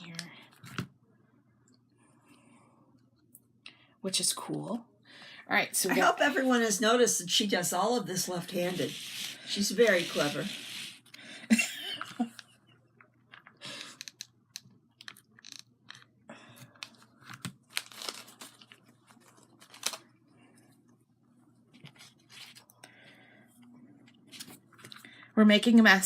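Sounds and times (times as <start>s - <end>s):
paper crinkling and tearing: 17.6s - 20.0s.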